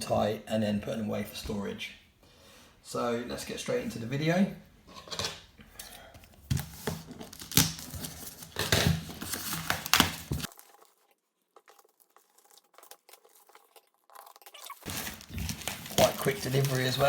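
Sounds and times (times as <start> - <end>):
packaging being torn open: 7.1 - 10.9, 14.2 - 17.0.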